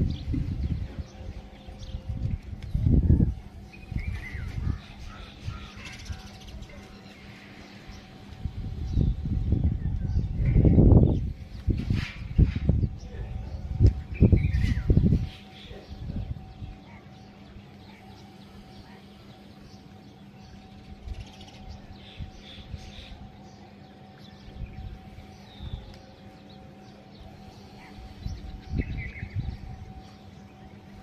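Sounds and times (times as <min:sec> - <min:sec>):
wind rumble on microphone: 0:00.0 - 0:06.9, 0:07.8 - 0:16.8, 0:20.6 - 0:23.6, 0:24.2 - 0:26.4, 0:27.3 - 0:30.2
birds chirping: 0:00.0 - 0:31.0
faint steady hum: 0:00.0 - 0:31.0.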